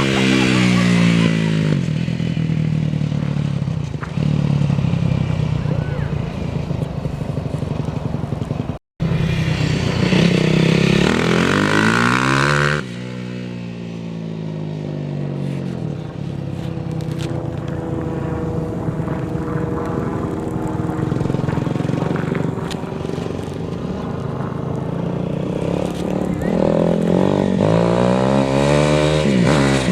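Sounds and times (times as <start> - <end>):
dirt bike engine revving: 0.0 - 16.6, 17.4 - 29.9.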